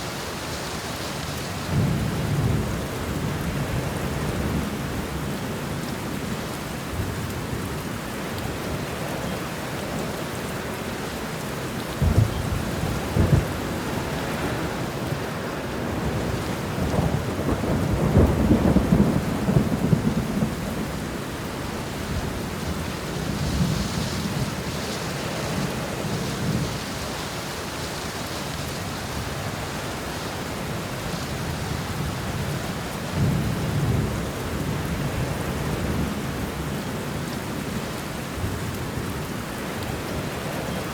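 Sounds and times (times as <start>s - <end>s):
steady rain: 0.0s - 40.9s
thunder claps and rumbles: 1.7s - 5.4s, 11.9s - 27.0s, 31.4s - 36.8s.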